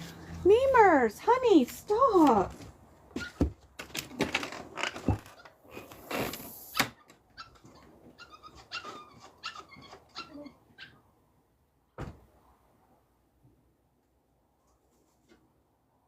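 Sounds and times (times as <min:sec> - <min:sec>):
puppy whimpering and yelping: 0:07.4 - 0:11.0.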